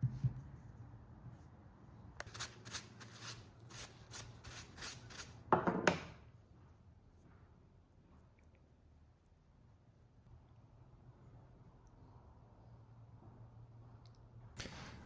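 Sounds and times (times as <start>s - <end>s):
hand tool scraping wood: 2.2s - 5.4s
knock: 5.5s - 6.1s.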